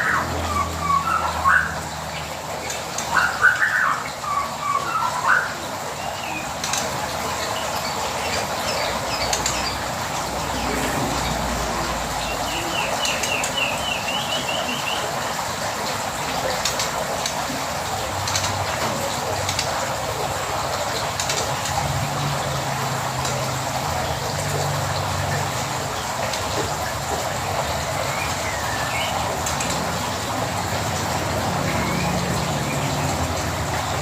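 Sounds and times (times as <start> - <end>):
caged songbirds chattering: 0.0 - 34.0.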